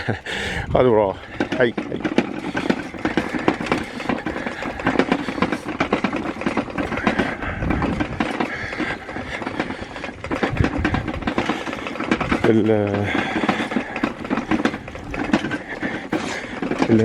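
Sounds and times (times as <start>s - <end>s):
bicycle rapid clicking and rattling: 0.0s - 17.0s.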